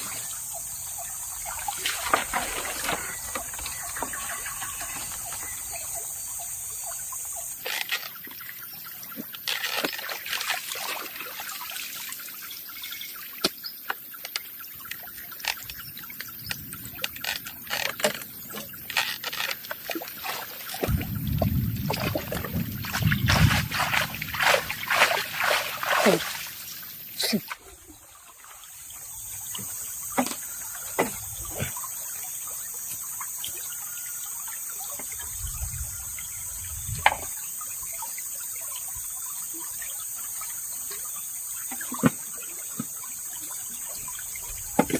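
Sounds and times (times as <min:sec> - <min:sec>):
water trickling and splashing: 0:00.0 - 0:44.9.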